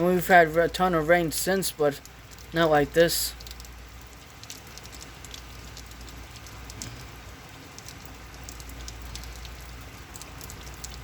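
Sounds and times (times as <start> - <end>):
drips and splashes: 0.0 - 11.0.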